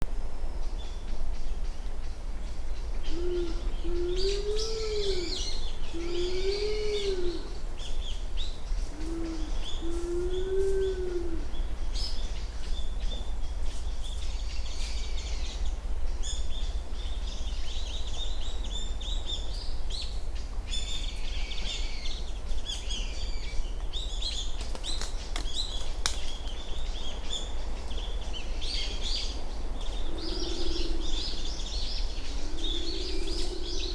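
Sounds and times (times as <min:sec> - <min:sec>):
wood pigeon cooing: 0:03.1 - 0:07.6, 0:08.9 - 0:11.5, 0:30.0 - 0:31.5, 0:32.3 - 0:33.9
small birds chirping: 0:11.5 - 0:33.9.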